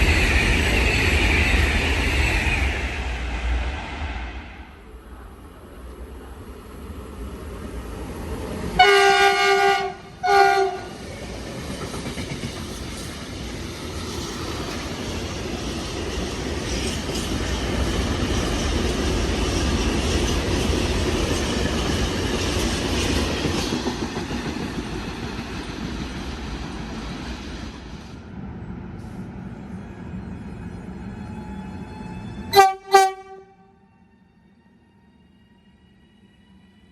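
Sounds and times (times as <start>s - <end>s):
train rumble: 0.0s - 36.9s
train horn: 8.8s - 11.0s, 32.5s - 33.9s.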